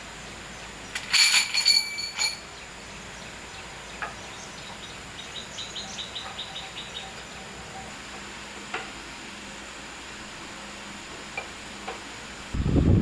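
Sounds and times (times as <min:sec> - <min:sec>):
outdoor hiss: 0:00.0 - 0:13.0
bird chirping: 0:02.5 - 0:08.0.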